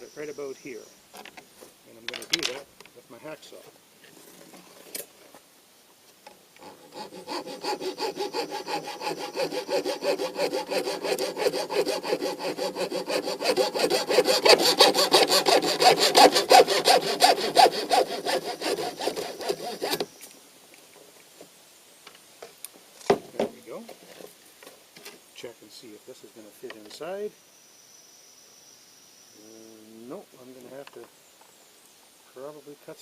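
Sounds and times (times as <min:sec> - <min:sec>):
hacksaw cutting: 0:06.6 - 0:20.1.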